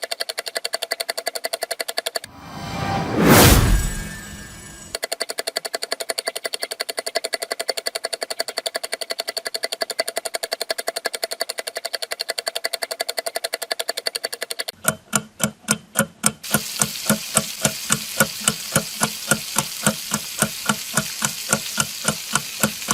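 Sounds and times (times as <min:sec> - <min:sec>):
sharp strikes with low thumps: 0:02.4 - 0:05.0
fast even ticking: 0:16.5 - 0:22.9
steady hiss: 0:16.5 - 0:22.9.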